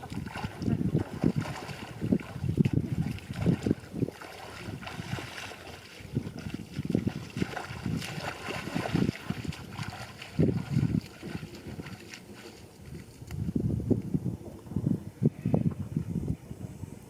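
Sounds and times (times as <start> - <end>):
water sloshing and splashing: 0.0 - 13.5.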